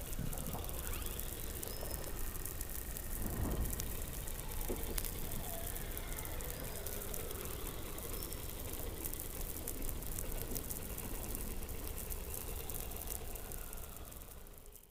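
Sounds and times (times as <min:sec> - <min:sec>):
faint falling whistles: 0:00.0 - 0:08.9, 0:12.2 - 0:14.8
underwater low rumble: 0:00.0 - 0:14.6.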